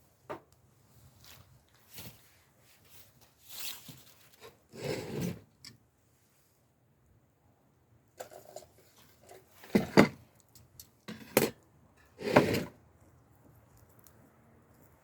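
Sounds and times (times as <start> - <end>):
handling rustles and knocks: 0.2 - 5.5.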